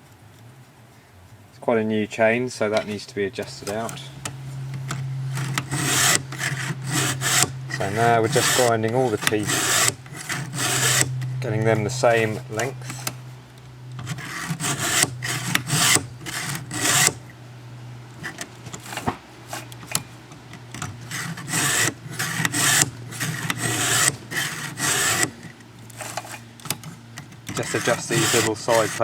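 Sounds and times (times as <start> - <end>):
file rasping on chainsaw teeth: 4.9 - 11.2, 14.0 - 17.2, 20.6 - 29.0.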